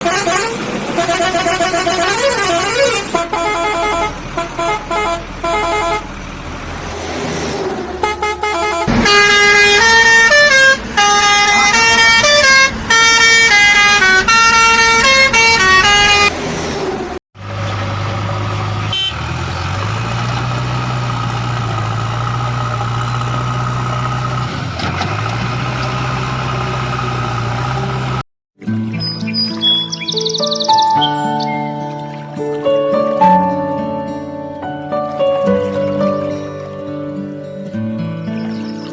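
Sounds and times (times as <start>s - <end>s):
cartoon horn honking tune: 0.0s - 6.1s, 8.0s - 16.3s, 18.9s - 19.2s
steady engine hum: 0.0s - 28.2s.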